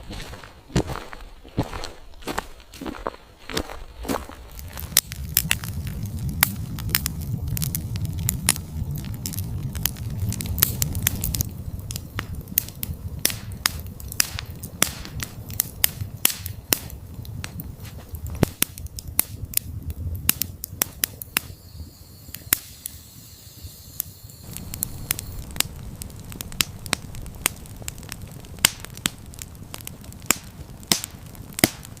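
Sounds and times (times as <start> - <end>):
low rumble of burning wood: 0.0 - 32.0
campfire snaps and pops: 3.6 - 32.0.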